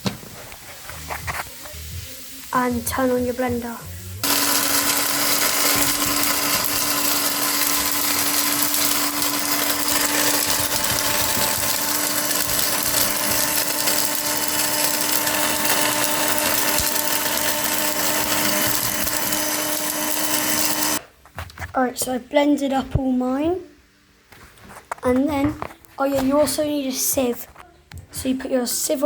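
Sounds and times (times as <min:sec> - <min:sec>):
blender grinding: 0:04.2 - 0:21.0.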